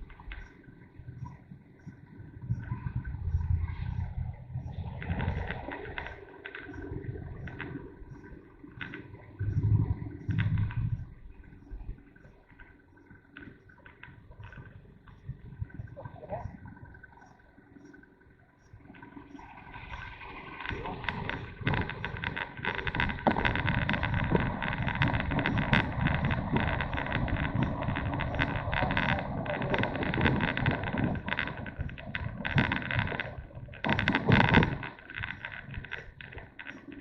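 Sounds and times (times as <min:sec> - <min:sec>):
wind buffeting microphone: 0:00.0 - 0:37.0
motorcycle riding: 0:19.2 - 0:37.0.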